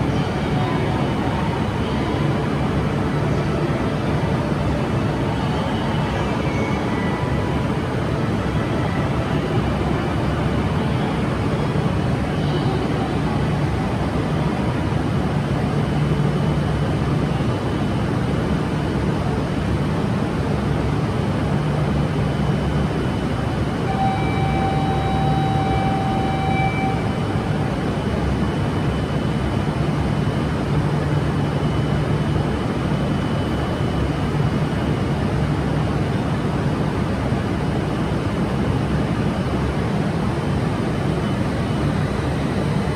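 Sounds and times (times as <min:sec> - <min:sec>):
train rumble and hum: 0:00.0 - 0:42.9
electronic tone: 0:23.9 - 0:28.1.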